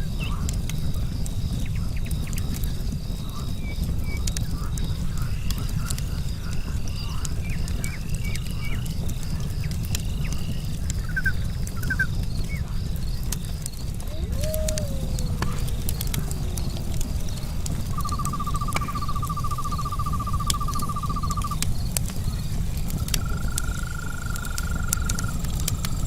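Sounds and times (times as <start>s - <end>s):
campfire burning: 0.0s - 26.0s
insects trilling: 0.0s - 26.0s
logs crackling: 0.0s - 26.0s
bird chirps: 17.9s - 21.6s.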